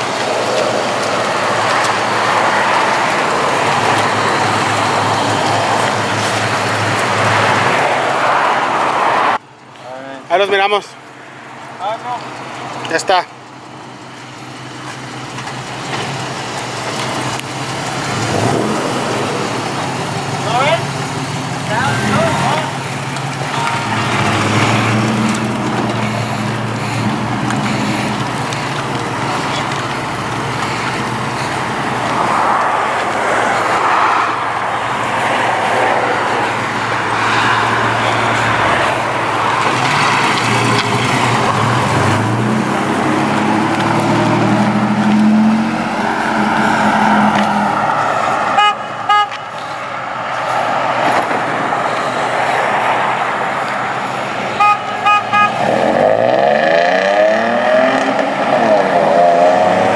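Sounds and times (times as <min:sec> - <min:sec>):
car engines running: 0:00.0 - 0:59.9
engine revving: 0:15.2 - 0:59.9
car horn beeps: 0:48.6 - 0:49.6, 0:54.5 - 0:56.0.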